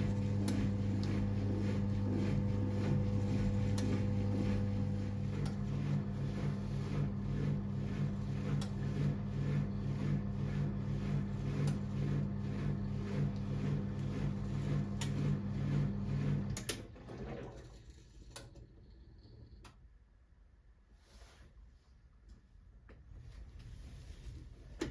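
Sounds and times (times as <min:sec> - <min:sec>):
washing machine running: 0:00.0 - 0:19.7.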